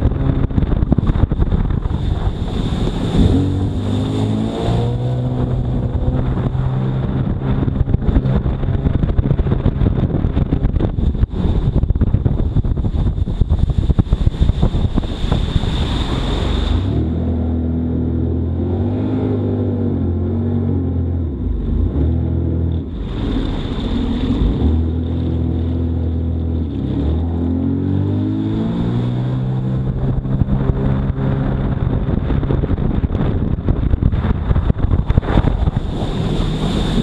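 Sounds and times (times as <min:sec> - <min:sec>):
choppy splashing: 0:00.0 - 0:17.0, 0:28.7 - 0:37.0
jet ski engine: 0:00.0 - 0:37.0
wind noise on microphone: 0:00.0 - 0:37.0.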